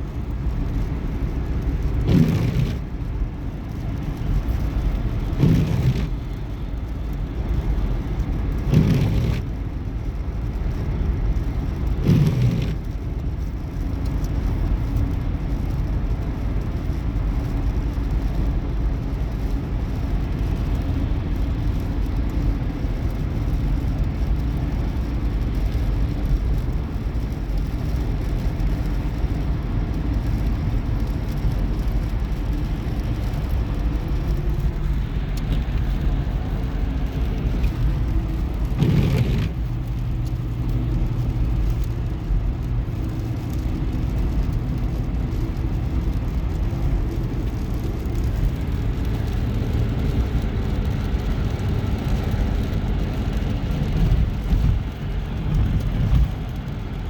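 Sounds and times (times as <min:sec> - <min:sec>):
car road and engine noise: 0:00.0 - 0:57.0.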